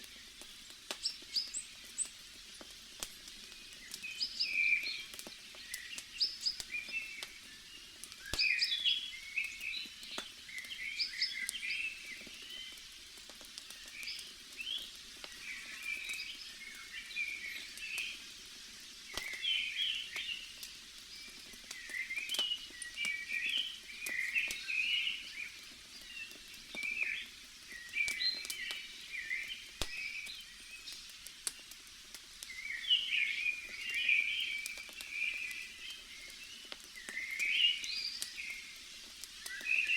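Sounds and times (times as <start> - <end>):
bonfire crackling: 0.0 - 39.9
forest chirping calls: 32.5 - 38.7.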